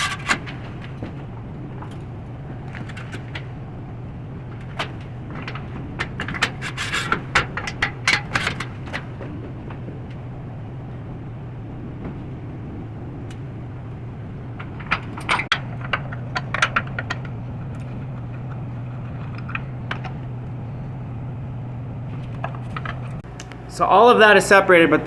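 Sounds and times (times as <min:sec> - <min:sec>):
low hum: 0:00.0 - 0:25.0
floor jack metal clicks: 0:14.5 - 0:20.6.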